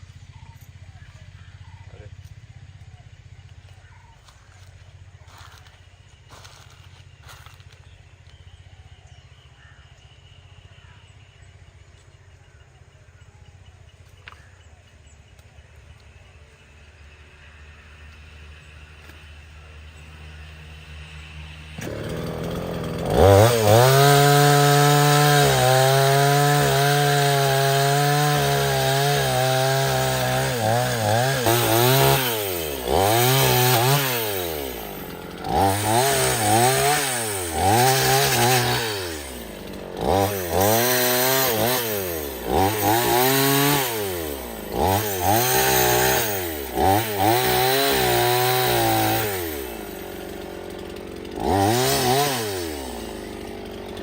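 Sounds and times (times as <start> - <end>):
chainsaw engine revving: 17.2 - 54.0.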